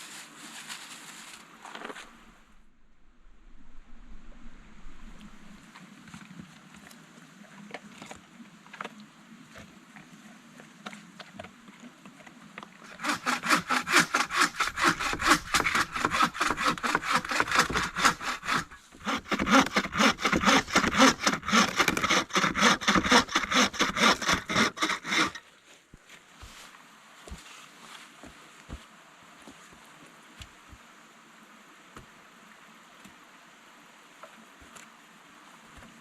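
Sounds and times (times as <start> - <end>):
hand saw cutting wood: 12.8 - 25.5.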